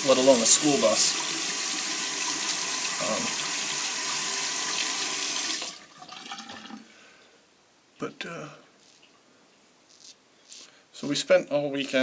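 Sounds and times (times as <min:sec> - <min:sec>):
water running into a sink: 0:00.0 - 0:06.8.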